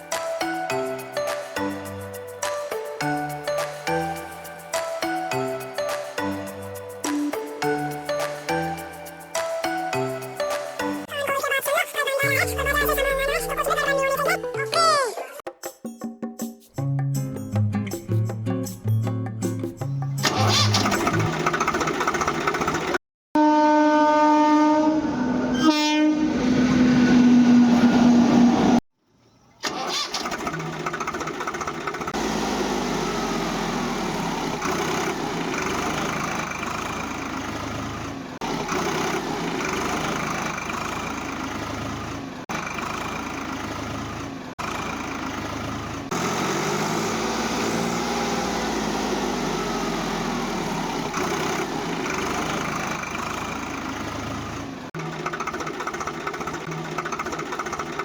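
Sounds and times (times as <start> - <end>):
horn with dropping pitch: 23.4 - 28.8.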